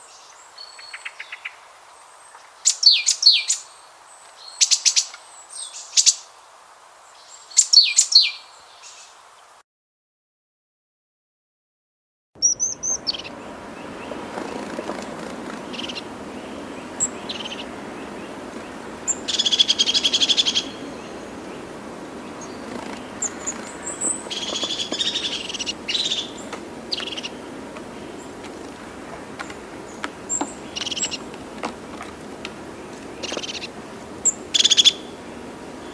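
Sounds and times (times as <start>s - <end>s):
birds chirping: 0.0s - 6.2s, 12.4s - 35.9s
outdoor hiss: 0.0s - 9.6s, 12.4s - 35.9s
bird trills: 12.4s - 21.6s, 22.2s - 28.4s, 33.2s - 35.3s.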